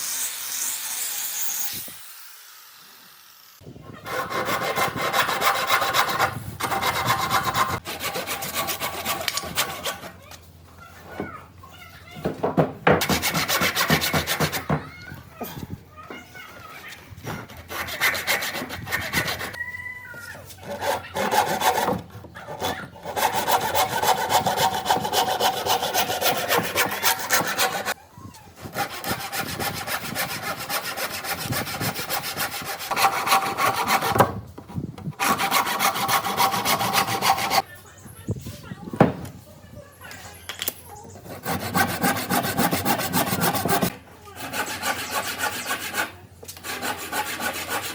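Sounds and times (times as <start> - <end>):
tool cutting wood: 4.0 - 10.2, 17.3 - 19.6, 20.6 - 28.0, 28.6 - 34.4, 35.0 - 37.6, 41.2 - 47.9.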